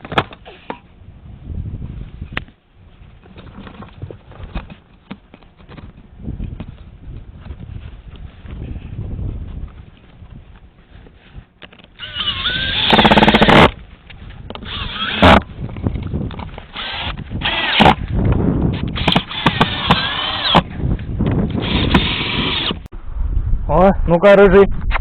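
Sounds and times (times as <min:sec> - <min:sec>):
power drill whirring: 0:12.0 - 0:13.8, 0:14.5 - 0:15.5, 0:16.7 - 0:18.1, 0:18.8 - 0:20.7, 0:21.6 - 0:22.9.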